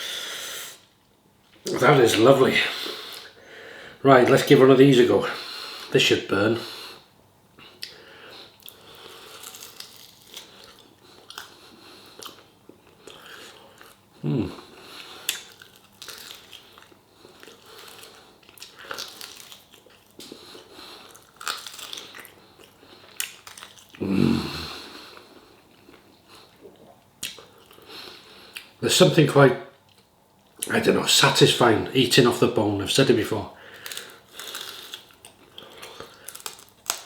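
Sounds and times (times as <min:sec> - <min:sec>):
man chewing and biting: 0:07.7 - 0:28.7, 0:33.7 - 0:37.0
wet smacking mouth sounds: 0:25.8 - 0:27.8.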